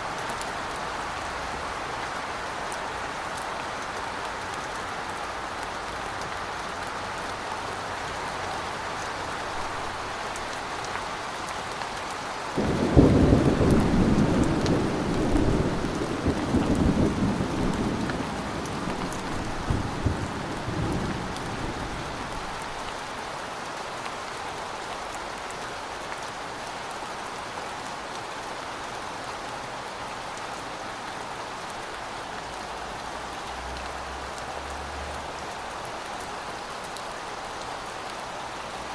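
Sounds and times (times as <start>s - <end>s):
steady rain falling: 0.0s - 38.9s
thunder clap and rumble: 12.6s - 22.3s.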